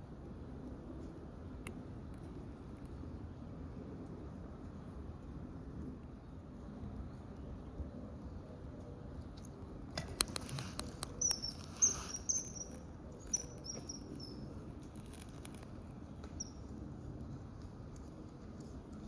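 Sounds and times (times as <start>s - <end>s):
kingfisher whistled calls: 11.2s - 14.4s.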